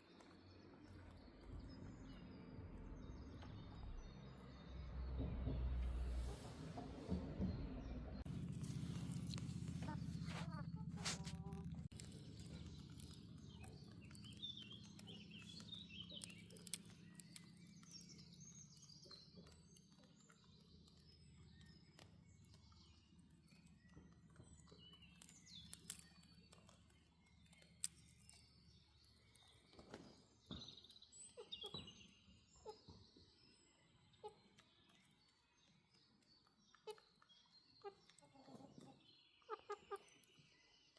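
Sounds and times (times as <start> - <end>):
faint bird chirps: 0.0 - 40.9
low steady hum: 0.8 - 19.1
small clicks: 9.0 - 31.0.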